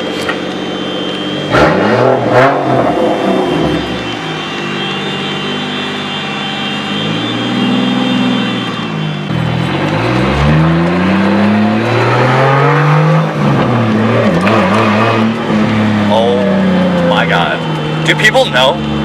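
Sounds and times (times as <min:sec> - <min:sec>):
turbo engine idling and revving: 0:00.0 - 0:19.0.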